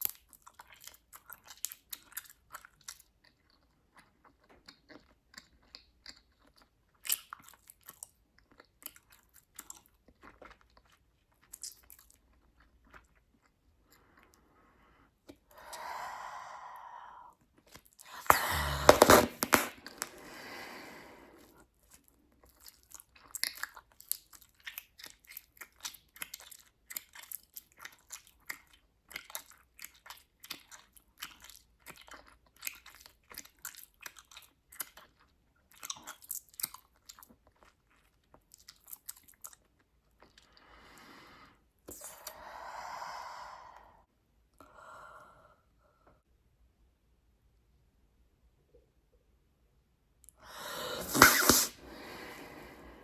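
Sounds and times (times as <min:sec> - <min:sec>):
gum chewing with wet clicks: 0:00.0 - 0:14.5, 0:21.8 - 0:40.6.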